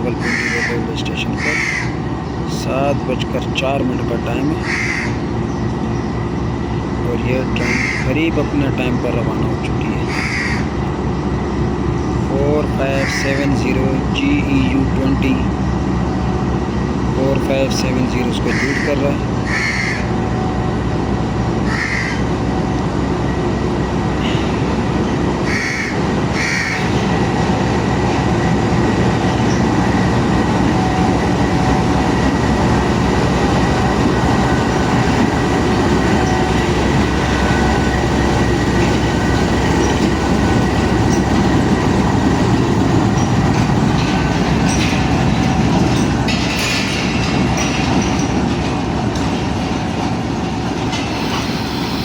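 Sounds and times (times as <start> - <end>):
train rolling past: 0.0 - 52.0.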